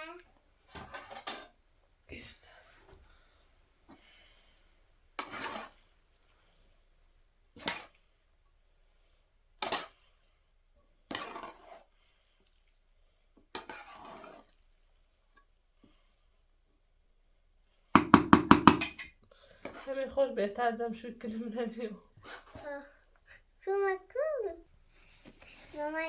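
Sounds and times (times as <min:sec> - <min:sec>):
pots and dishes clattering: 0:00.7 - 0:01.6.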